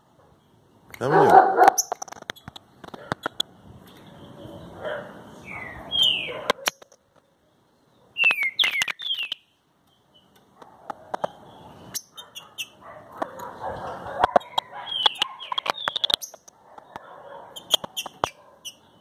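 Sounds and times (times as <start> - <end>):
bird singing whistled notes: 5.4 - 6.4, 8.2 - 10.3
sharp clicks: 14.2 - 18.4.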